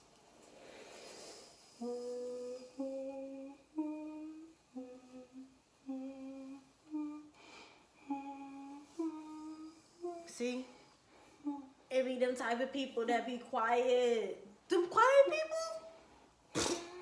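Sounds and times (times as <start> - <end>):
soft breathy hiss: 0.0 - 14.7, 15.6 - 17.0
woman humming: 1.8 - 7.4, 8.0 - 10.7, 11.4 - 11.8, 16.6 - 17.0.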